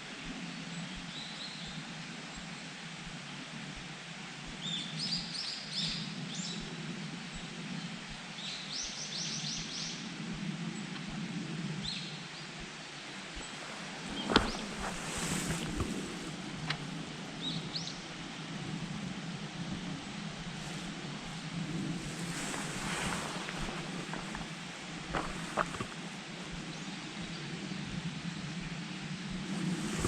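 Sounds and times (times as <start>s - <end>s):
low background rumble: 6.0s - 30.0s.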